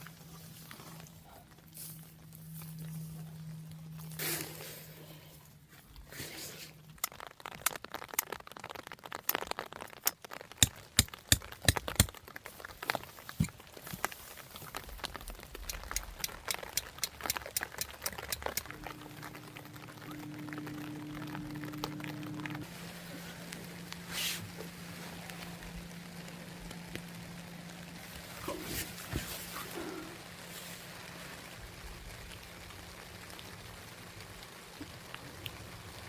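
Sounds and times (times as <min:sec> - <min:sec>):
steady low hum: 0:00.0 - 0:07.0, 0:15.4 - 0:34.0
rain falling: 0:00.0 - 0:36.0
sharp irregular clicks and taps: 0:10.0 - 0:12.2, 0:15.5 - 0:18.8.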